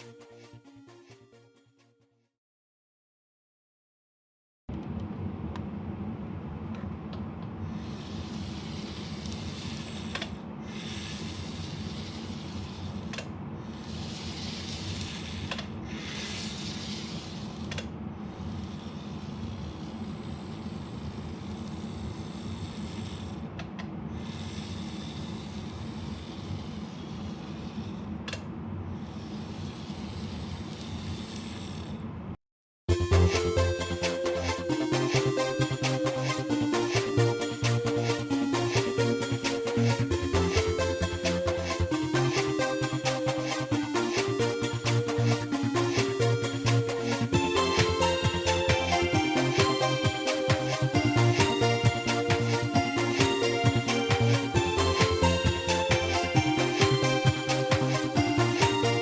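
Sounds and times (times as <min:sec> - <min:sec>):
model train motor hum: 0:07.6 - 0:28.4, 0:29.0 - 0:32.1, 0:33.0 - 0:59.0
hiss: 0:07.7 - 0:23.4, 0:24.1 - 0:28.1, 0:29.0 - 0:32.0.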